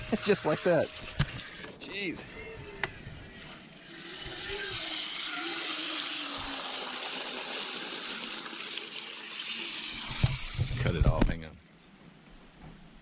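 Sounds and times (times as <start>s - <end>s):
water spraying from hose: 0.0s - 1.8s, 2.4s - 10.8s.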